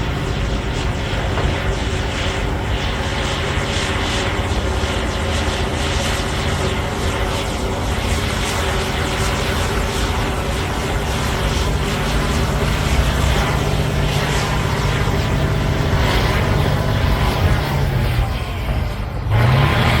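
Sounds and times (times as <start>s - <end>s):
bulldozer tracks clattering: 0.0s - 2.6s
bulldozer diesel engine running: 0.0s - 20.0s.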